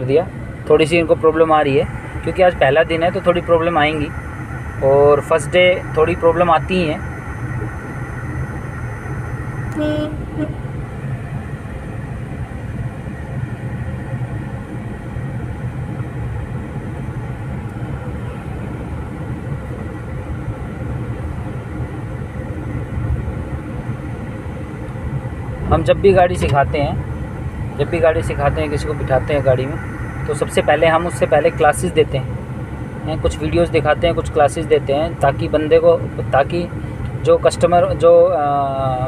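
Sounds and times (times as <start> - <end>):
car engine and road noise: 0.0 - 39.0
short tone: 7.0 - 10.6.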